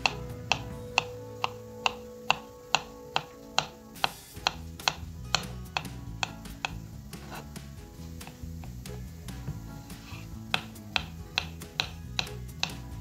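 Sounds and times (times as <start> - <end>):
knife chopping on wooden board: 0.0 - 7.6, 10.0 - 12.8
background music: 0.0 - 13.0.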